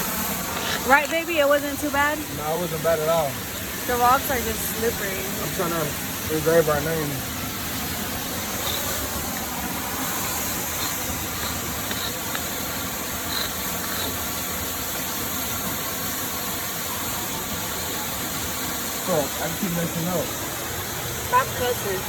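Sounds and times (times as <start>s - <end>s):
waterfall and creek rushing: 0.0s - 22.0s.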